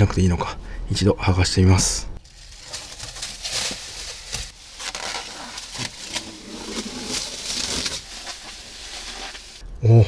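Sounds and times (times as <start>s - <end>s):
plastic film crinkling: 2.2s - 9.6s.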